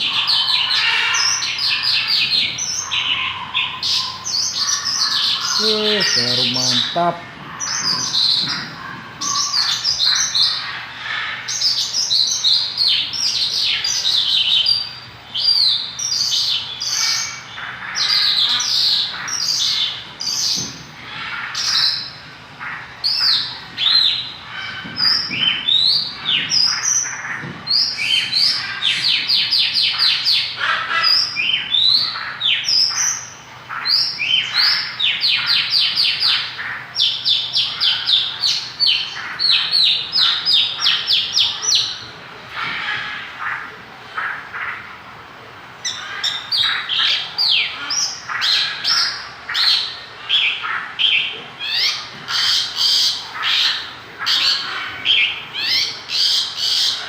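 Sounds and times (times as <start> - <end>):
lark singing: 0.0 - 10.8.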